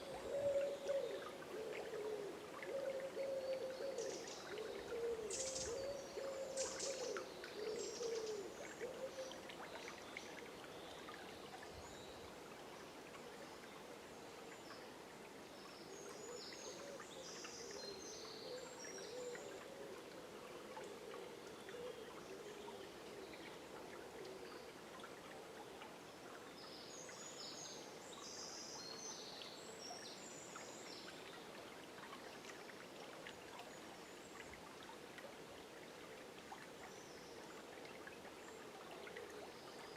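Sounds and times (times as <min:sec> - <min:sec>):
forest river flowing: 0:00.0 - 0:39.9
high bird song: 0:03.2 - 0:08.4.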